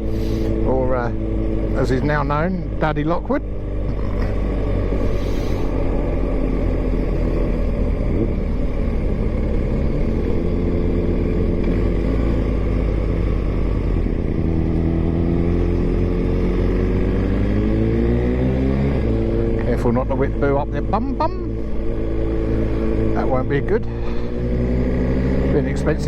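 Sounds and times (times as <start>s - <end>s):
low wind rumble: 0.0s - 26.0s
motorcycle engine cruising: 0.0s - 26.0s.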